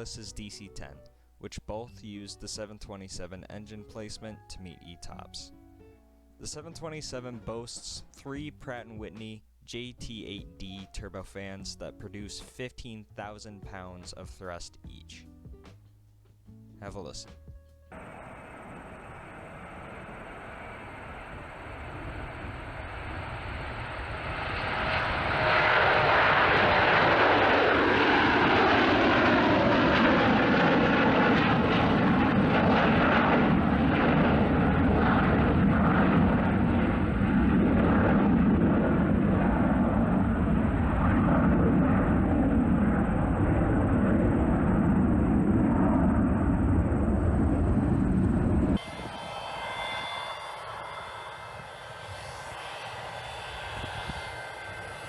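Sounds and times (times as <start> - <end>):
jet engine roar: 17.9 - 55.0
jet engine whine: 17.9 - 55.0.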